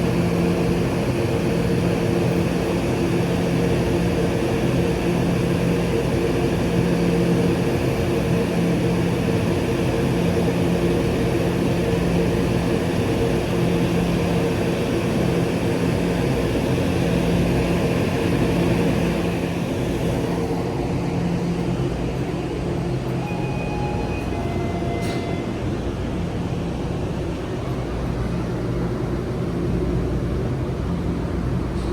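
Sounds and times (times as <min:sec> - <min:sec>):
train humming: 0:10.4 - 0:31.9.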